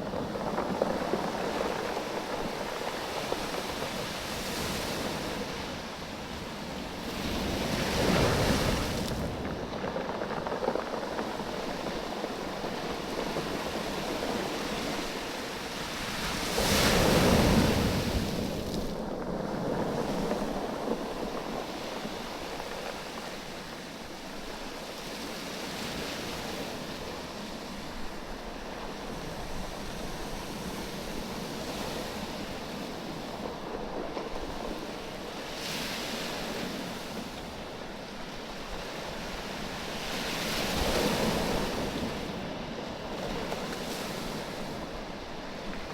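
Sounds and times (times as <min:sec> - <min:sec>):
beach stones rolling and knocking: 0:00.0 - 0:42.3
waves washing over stones: 0:00.0 - 0:45.9.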